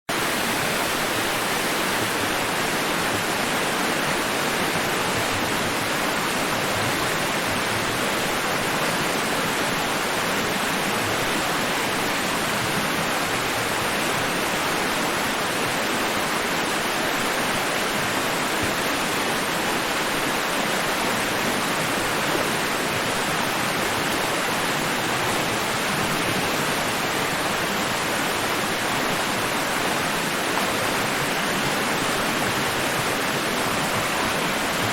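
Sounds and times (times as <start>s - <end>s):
white-noise hiss: 0.1s - 5.2s.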